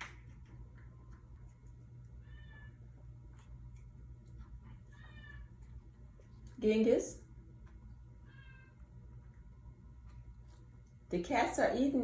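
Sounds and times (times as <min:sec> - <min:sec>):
cat meowing: 0:02.2 - 0:02.8, 0:04.9 - 0:05.5, 0:08.2 - 0:08.8.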